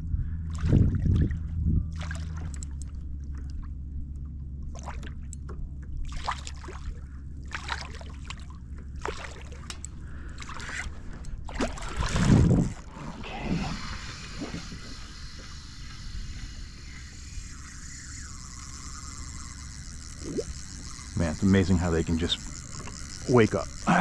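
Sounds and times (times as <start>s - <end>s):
low rumble: 0.0s - 7.6s
water splashing against hull: 0.5s - 3.8s, 4.6s - 17.8s.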